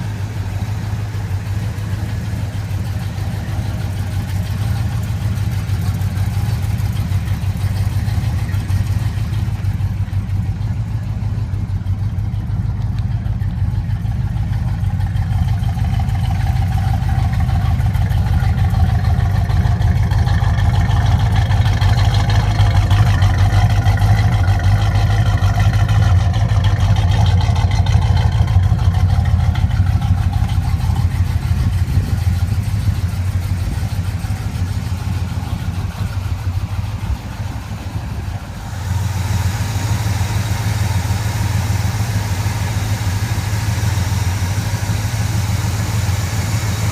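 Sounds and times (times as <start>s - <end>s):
car engine exhaust rumble: 0.0s - 46.9s
hiss: 38.6s - 46.9s.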